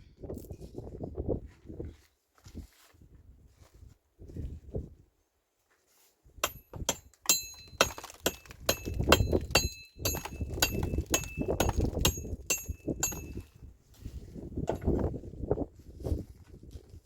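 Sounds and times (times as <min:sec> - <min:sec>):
sharp metallic clinks: 0:06.4 - 0:13.6.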